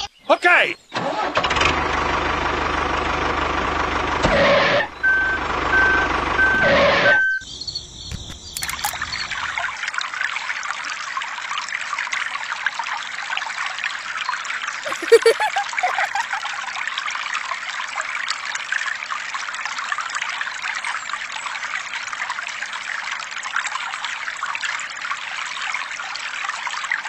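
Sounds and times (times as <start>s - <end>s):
water trickling and pouring: 8.2s - 27.0s.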